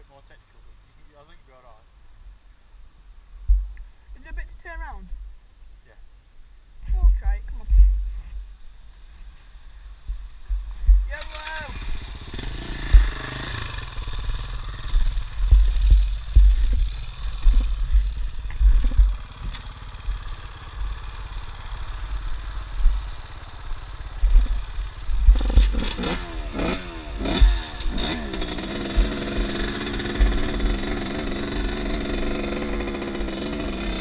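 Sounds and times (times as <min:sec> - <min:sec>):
motorcycle engine revving: 0:10.1 - 0:34.0.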